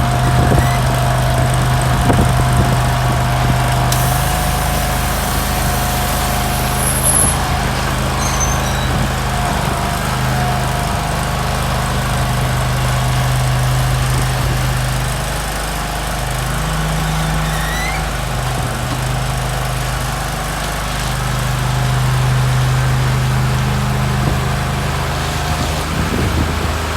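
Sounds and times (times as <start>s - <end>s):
stump grinder engine running: 0.0s - 26.9s
thin steady whine: 3.9s - 9.0s.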